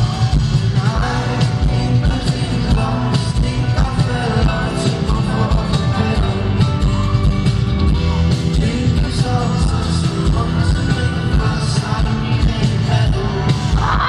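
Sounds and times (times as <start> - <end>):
person singing: 0.0 - 7.4, 8.0 - 14.0
live band with heavy bass: 0.0 - 14.0.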